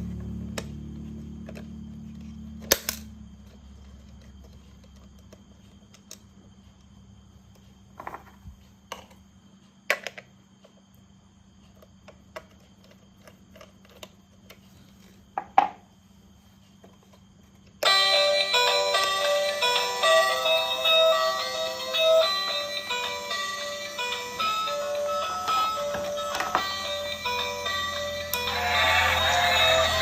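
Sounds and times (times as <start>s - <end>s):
music tune: 17.8s - 30.0s.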